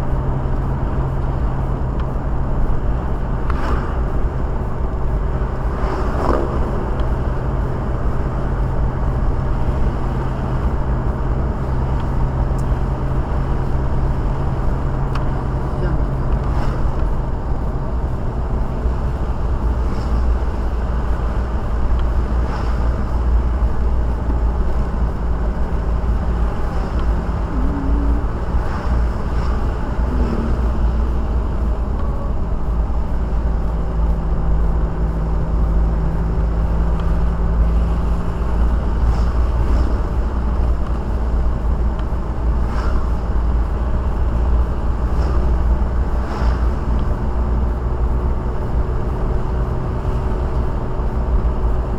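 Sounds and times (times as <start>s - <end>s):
road and engine rumble in car: 0.0s - 51.9s
faint light ticks: 2.0s - 2.2s, 35.6s - 37.4s.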